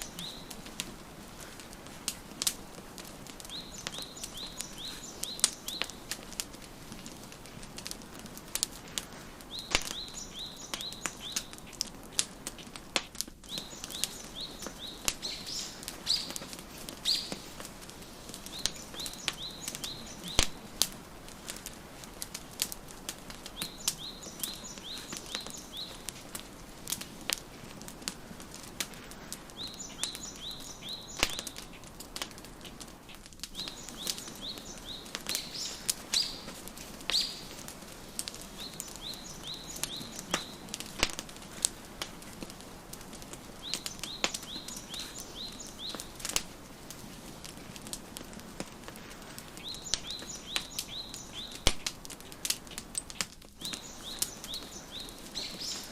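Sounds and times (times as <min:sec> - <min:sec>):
songbird chirping: 0:00.0 - 0:07.4, 0:08.7 - 0:12.8, 0:13.4 - 0:27.5, 0:29.1 - 0:32.4, 0:33.1 - 0:46.4, 0:49.2 - 0:52.1, 0:52.7 - 0:55.9
wood fire crackling and popping: 0:00.0 - 0:55.9.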